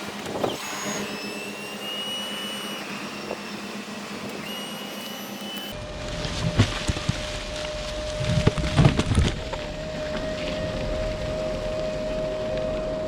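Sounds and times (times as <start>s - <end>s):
faint high whine: 0.4s - 13.0s.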